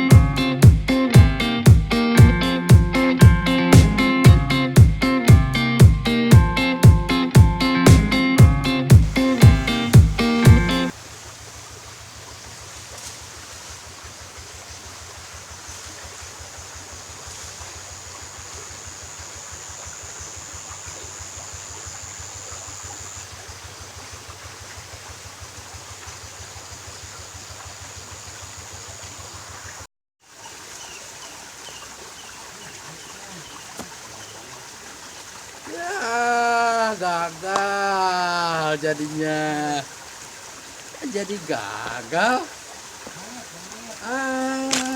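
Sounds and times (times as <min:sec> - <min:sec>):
fast low throb: 0:00.0 - 0:10.9
stream flowing: 0:00.0 - 0:44.9.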